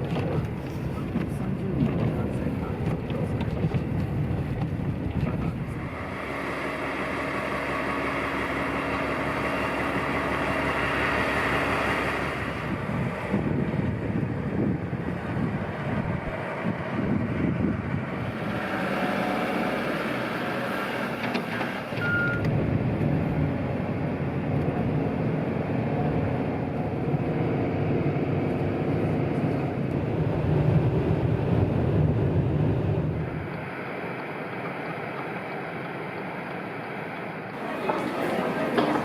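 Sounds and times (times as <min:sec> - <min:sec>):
vehicle engine running: 0:00.0 - 0:39.0
short beep: 0:22.0 - 0:22.5.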